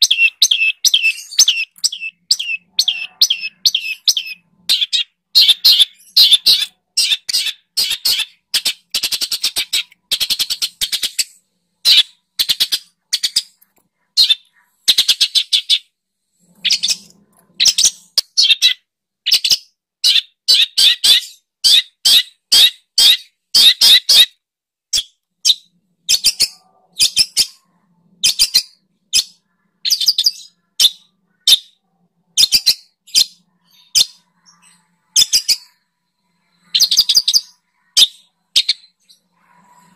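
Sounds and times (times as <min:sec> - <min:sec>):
bird chattering: 0:00.0 - 0:15.9, 0:16.5 - 0:24.3.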